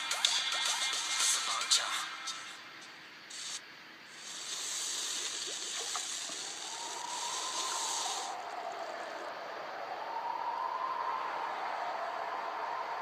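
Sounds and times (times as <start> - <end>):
steady hiss: 0.0 - 13.0
siren wailing: 6.4 - 13.0.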